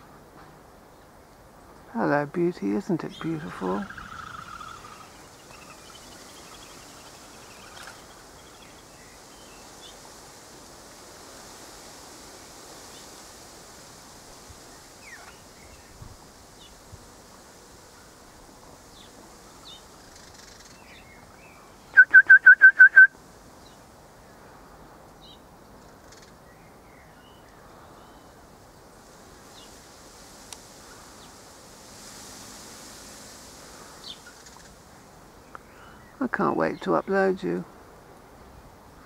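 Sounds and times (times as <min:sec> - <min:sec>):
faint chirps: 0:03.1 - 0:09.8
bird whistling rapid notes: 0:03.6 - 0:08.8, 0:21.9 - 0:23.1.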